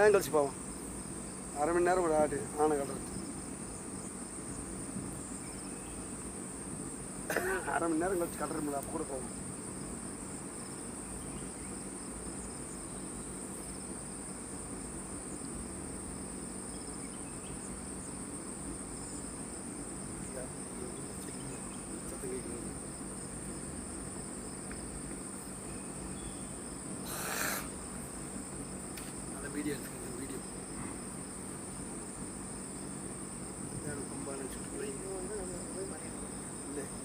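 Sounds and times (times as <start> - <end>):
insect chorus droning: 0.0 - 37.0.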